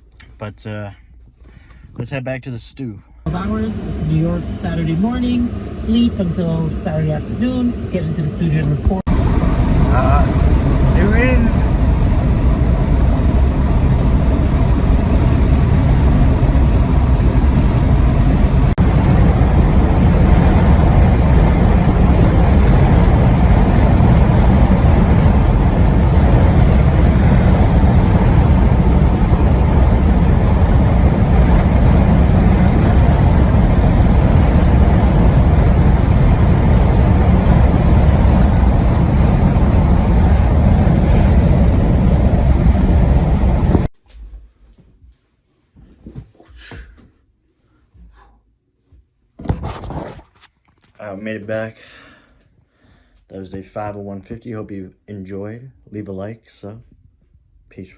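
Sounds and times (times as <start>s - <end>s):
car interior road rumble: 18.7s - 43.9s.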